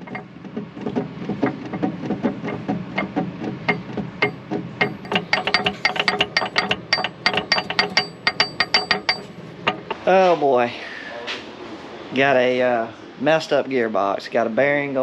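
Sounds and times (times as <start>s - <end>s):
gearbox metallic clicking and clunking: 0.0s - 10.1s.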